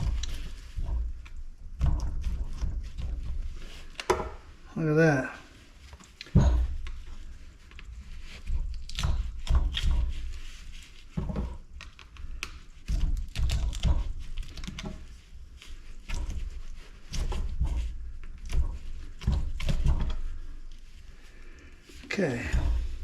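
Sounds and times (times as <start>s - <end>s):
low rumbling handling noise: 5.4s - 23.0s.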